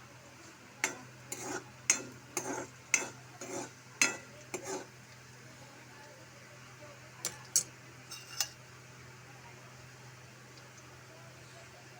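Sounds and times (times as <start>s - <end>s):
spoon scraping pan: 0.8s - 5.0s, 7.4s - 8.6s.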